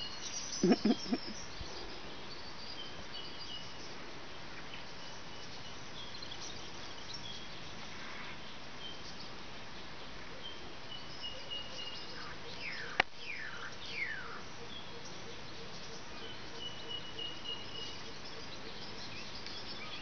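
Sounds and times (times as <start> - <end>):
birds calling: 0.0 - 4.0
steady background hiss: 0.0 - 20.0.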